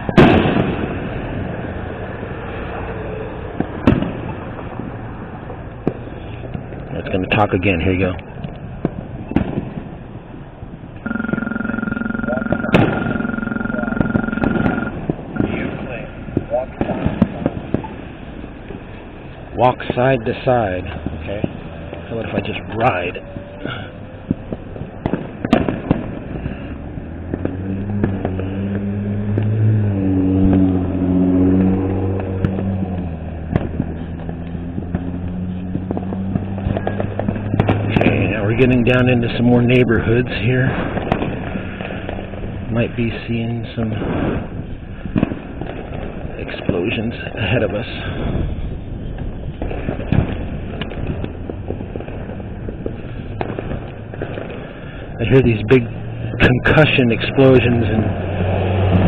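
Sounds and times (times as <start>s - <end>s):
firecracker pops: 0.0s - 1.4s, 3.6s - 4.8s, 8.2s - 9.9s, 14.9s - 18.1s, 23.3s - 29.6s, 31.5s - 39.0s, 40.7s - 42.4s, 43.9s - 47.0s, 49.1s - 55.2s
sharp crack: 0.0s - 11.1s, 11.9s - 59.0s
vehicle engine running: 10.4s - 16.6s, 26.1s - 43.1s
crosswalk signal buzzing tone: 11.0s - 15.6s.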